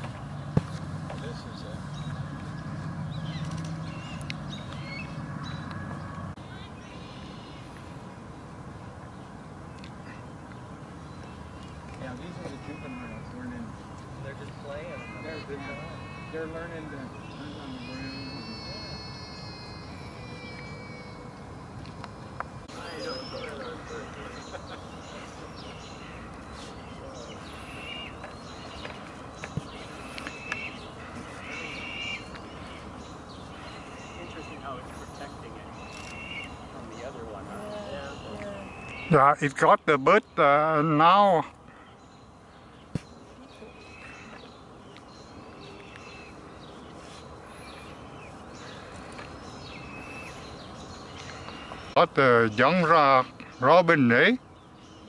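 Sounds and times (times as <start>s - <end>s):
outdoor background noise: 0.0s - 55.0s
small birds chirping: 0.0s - 55.0s
whistled notes: 17.8s - 21.4s.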